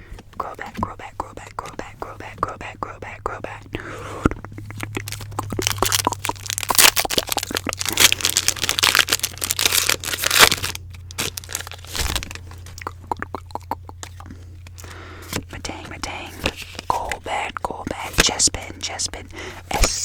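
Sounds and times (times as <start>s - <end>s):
steady low hum: 0.0s - 20.0s
wrapper crumpling: 4.9s - 12.8s.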